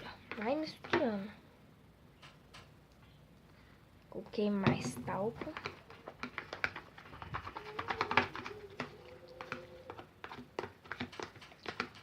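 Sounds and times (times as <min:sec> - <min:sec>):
faint steady hum: 0:00.0 - 0:10.7
slime squelching: 0:04.7 - 0:12.0.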